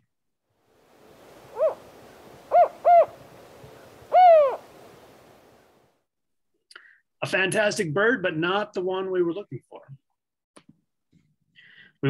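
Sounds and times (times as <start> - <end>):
faint field recording hiss: 0.5 - 6.0
owl hooting: 1.3 - 5.6.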